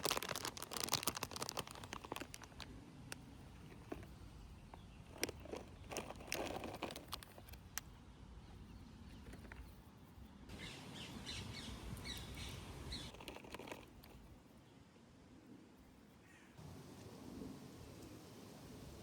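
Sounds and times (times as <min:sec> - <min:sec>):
handling rustle: 0:00.0 - 0:08.0, 0:12.9 - 0:14.6
small birds chirping: 0:01.2 - 0:15.0.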